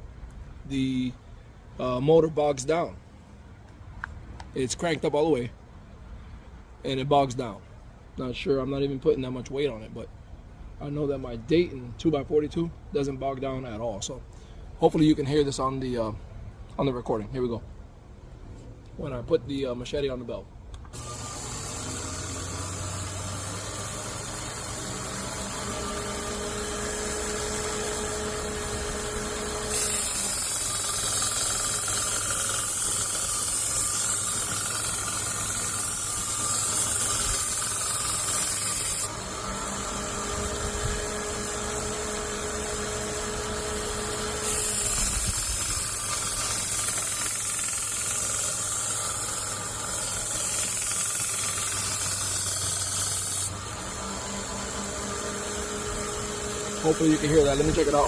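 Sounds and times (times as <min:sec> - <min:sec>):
belt grinder running: 0:20.9 - 0:58.0
blade grinding on sanding belt: 0:21.0 - 0:58.0.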